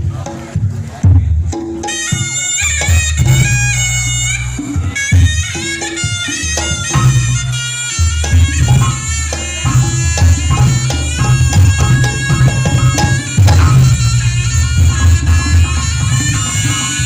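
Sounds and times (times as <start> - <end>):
deep drum beats: 0.0 - 17.0
shawm playing reedy melody: 1.6 - 17.0
gong beats: 6.9 - 16.8.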